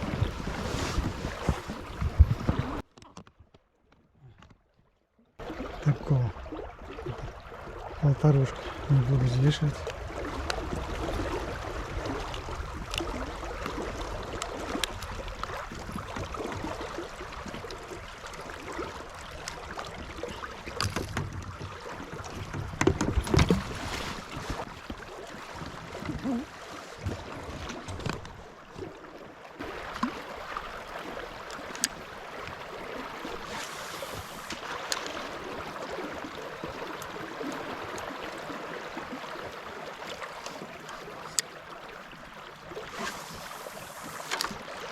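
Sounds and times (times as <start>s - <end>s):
moving river water: 0.0s - 44.9s
wind: 0.0s - 44.9s
sharp clicks and knocks: 20.8s - 23.7s.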